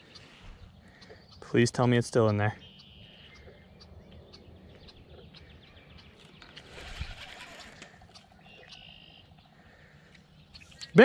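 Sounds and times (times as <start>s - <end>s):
faint bird calls: 0.0s - 11.0s
brief rustle: 6.2s - 8.3s.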